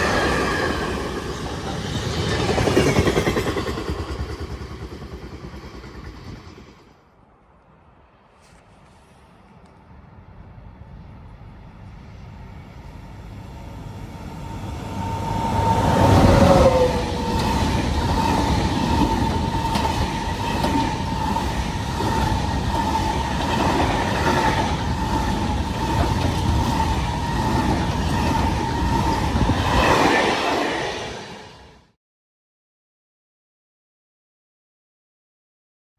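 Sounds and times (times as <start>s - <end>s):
train passing close by: 0.0s - 32.0s.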